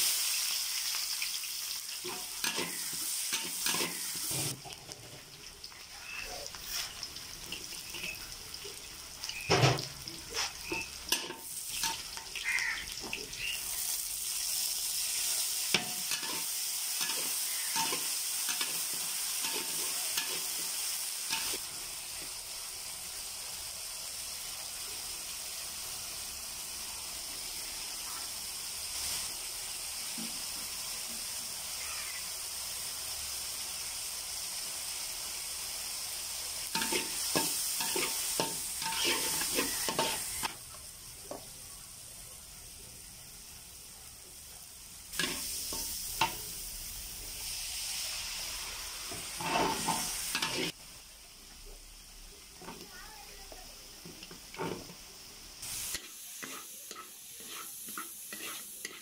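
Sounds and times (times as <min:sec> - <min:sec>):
onions frying in oil: 0:00.0 - 0:59.0
metal spatula scraping pan: 0:02.1 - 0:04.6, 0:36.8 - 0:40.4, 0:49.3 - 0:50.8, 0:55.9 - 0:59.0.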